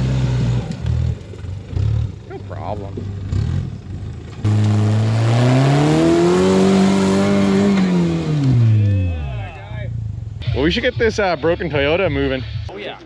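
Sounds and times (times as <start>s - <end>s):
engine revving hard: 4.4s - 8.9s.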